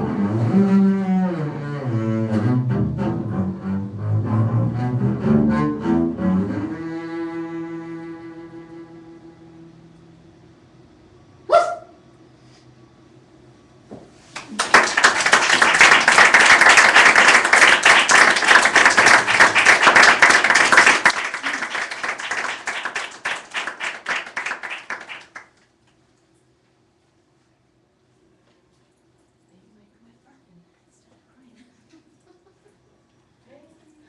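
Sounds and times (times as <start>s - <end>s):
short rising yelp: 11.5s - 12.0s
audience applause: 14.4s - 25.6s.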